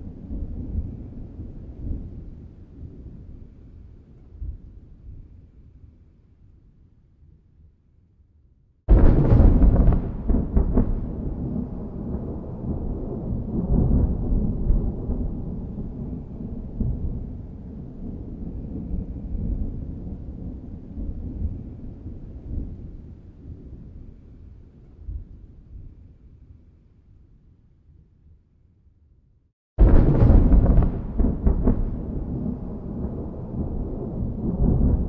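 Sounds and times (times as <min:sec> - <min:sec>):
thunder crack and rumble: 0:00.0 - 0:05.3, 0:08.9 - 0:24.3, 0:29.8 - 0:35.0.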